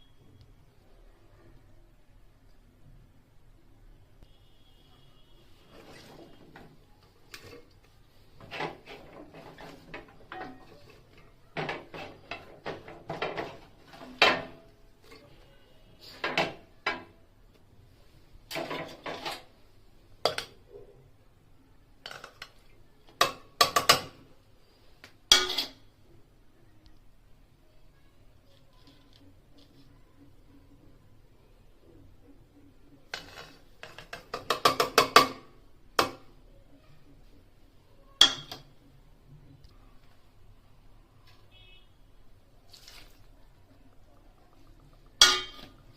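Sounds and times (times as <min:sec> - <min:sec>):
metal utensils clinking on cookware: 0:08.4 - 0:14.6, 0:25.3 - 0:25.9, 0:38.2 - 0:38.7, 0:44.9 - 0:45.9.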